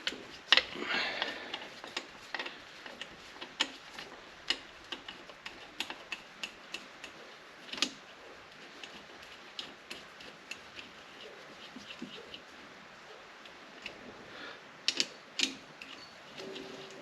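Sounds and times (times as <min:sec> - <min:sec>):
metallic clicks of hand tools: 0:14.9 - 0:16.1.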